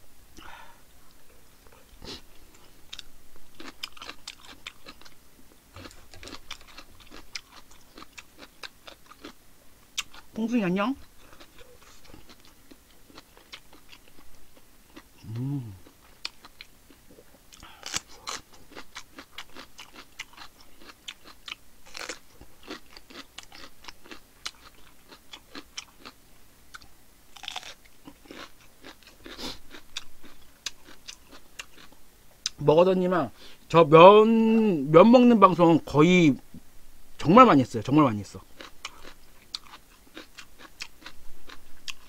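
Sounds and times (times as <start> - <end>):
crunchy chewing of chili pepper: 1.1 - 32.6, 38.4 - 42.0
person humming: 15.2 - 15.8.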